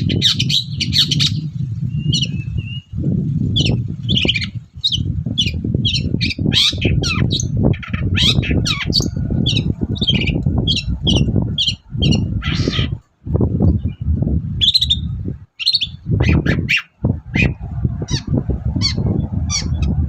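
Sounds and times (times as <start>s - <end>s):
heavy low rumbling noise: 0.7s - 20.0s
bird singing harsh squawky notes: 3.6s - 13.1s, 14.6s - 20.0s.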